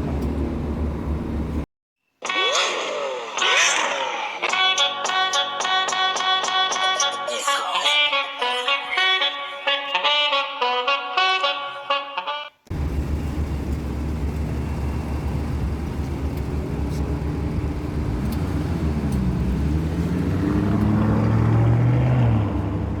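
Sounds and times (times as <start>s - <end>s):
car engine revving: 12.7s - 23.0s.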